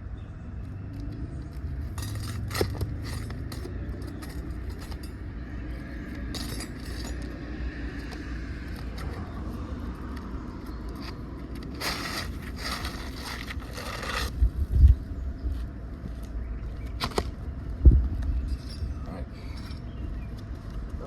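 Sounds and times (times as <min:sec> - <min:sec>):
metal tools scraping shingles: 0:01.8 - 0:05.2, 0:06.2 - 0:07.4, 0:11.0 - 0:14.4.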